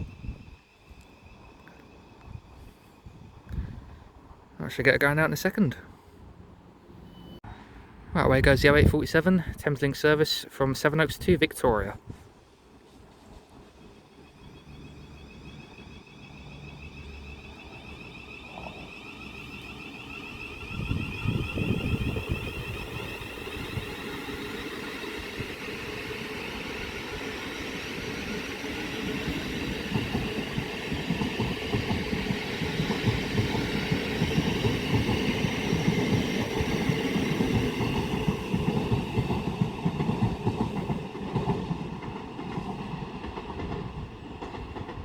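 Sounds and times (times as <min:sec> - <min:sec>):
electric train rumbling past: 0:00.0 - 0:45.0
wheels clattering over rail joints: 0:13.6 - 0:45.0.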